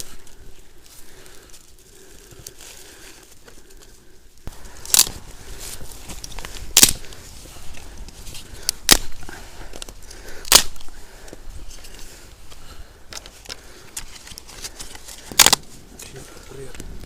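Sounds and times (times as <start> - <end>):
campfire wood crackling: 0.0 - 17.0
sharp pops of fire: 6.7 - 7.1, 8.7 - 9.2, 10.4 - 10.8, 15.3 - 15.7.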